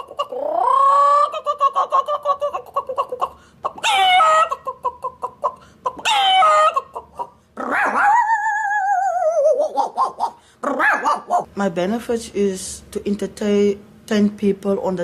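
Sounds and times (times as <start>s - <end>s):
man imitating animal calls: 0.0s - 11.5s.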